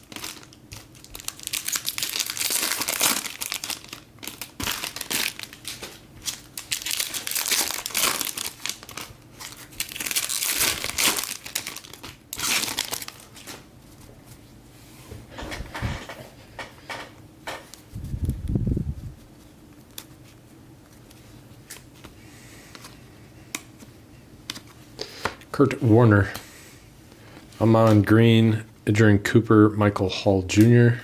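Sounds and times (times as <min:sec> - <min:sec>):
foil wrappers crinkling and tearing: 0:00.0 - 0:13.7.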